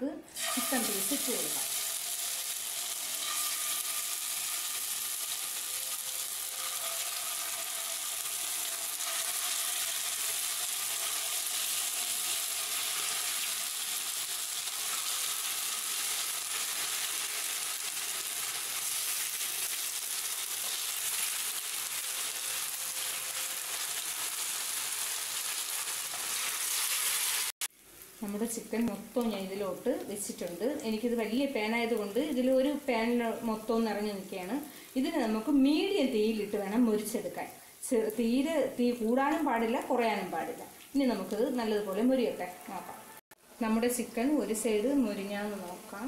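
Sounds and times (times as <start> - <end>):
chicken sizzling in oil: 0.4 - 36.9.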